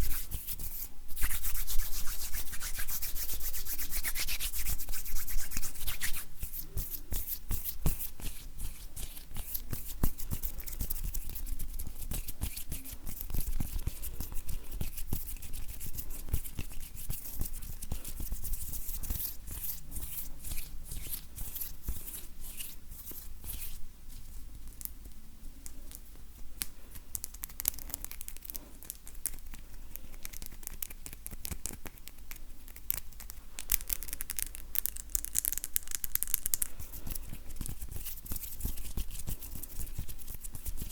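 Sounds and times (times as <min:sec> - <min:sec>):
hands rubbing together: 0:00.0 - 0:24.3.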